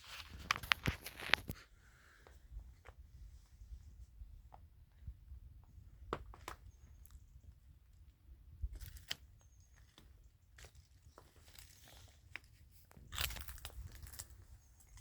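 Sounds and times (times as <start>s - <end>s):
crunching and rustling: 0.0s - 1.6s, 8.7s - 15.0s.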